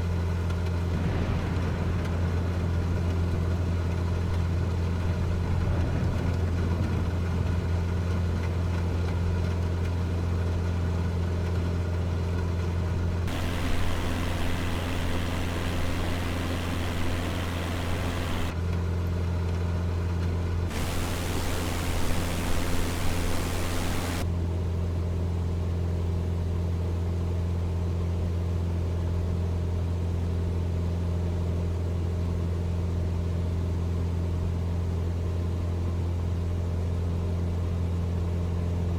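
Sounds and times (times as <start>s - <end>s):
loud hiss: 13.3s - 18.5s, 20.7s - 24.2s
airplane engine and propeller droning: 13.3s - 18.6s, 20.7s - 24.2s.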